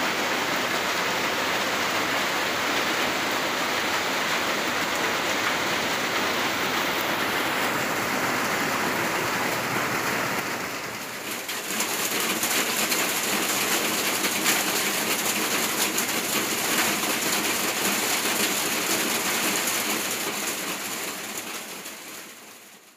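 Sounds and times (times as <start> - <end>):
raindrops striking hard surface: 0.0 - 22.9
steady rain falling: 0.0 - 22.9.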